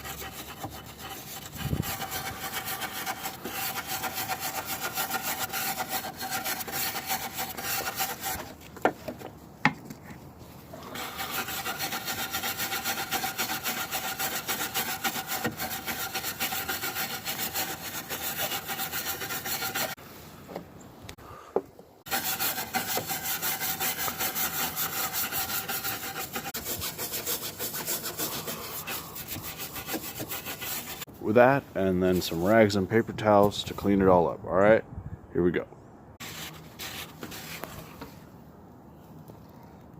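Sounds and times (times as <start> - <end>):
wire brush scrubbing metal: 0.0 - 8.6, 10.8 - 20.0, 22.1 - 31.1.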